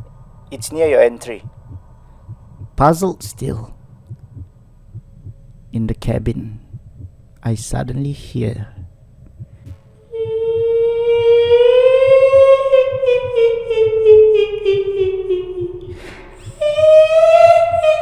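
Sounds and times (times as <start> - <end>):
faint low pulsing: 0.0 - 18.0
woman singing wordless notes: 10.0 - 18.0.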